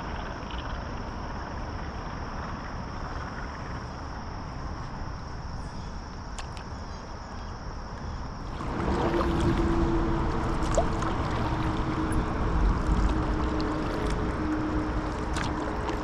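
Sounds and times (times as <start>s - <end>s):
faint low hum: 0.0s - 16.0s
insects trilling: 0.0s - 16.0s
water sloshing around kayak: 8.4s - 16.0s.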